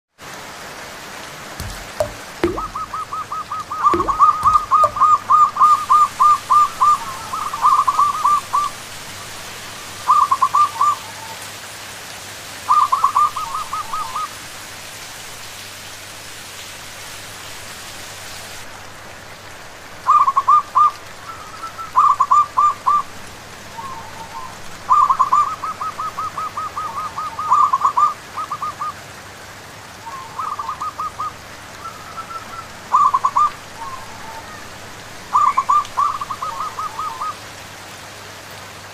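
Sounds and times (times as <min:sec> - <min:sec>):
rain hissing: 0:00.2 - 0:38.9
doves cooing: 0:01.6 - 0:11.4, 0:23.7 - 0:29.0, 0:30.1 - 0:37.5.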